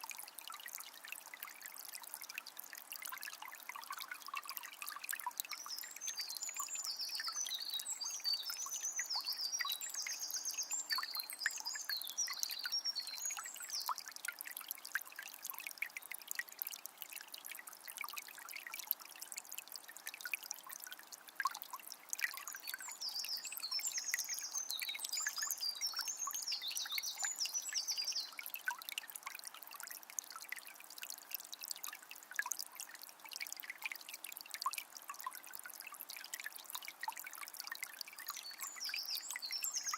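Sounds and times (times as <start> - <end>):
spring water trickling: 0.0 - 39.9
small bird chirping: 22.6 - 28.4, 38.3 - 39.9.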